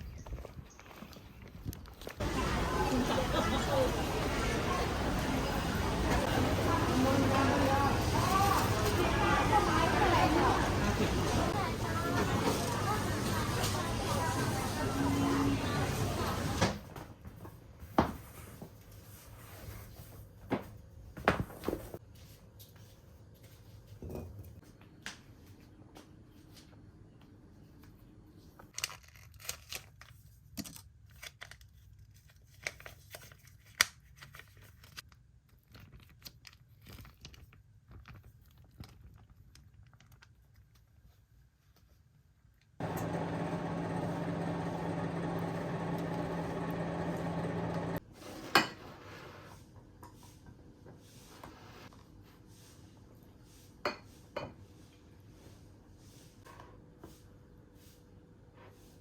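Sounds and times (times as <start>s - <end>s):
small appliance motor hum: 42.8s - 48.0s.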